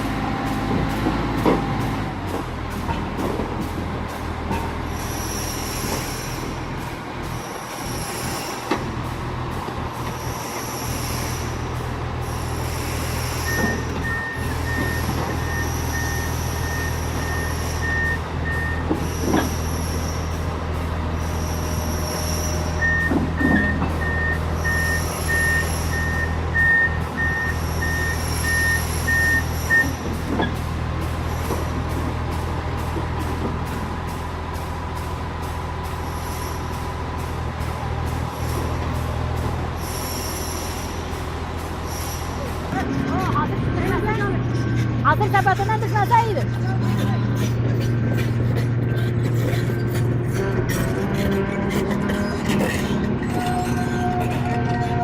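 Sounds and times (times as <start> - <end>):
engine droning: 0.0 - 55.0
reversing alarm beeping: 12.3 - 20.4, 21.3 - 30.1.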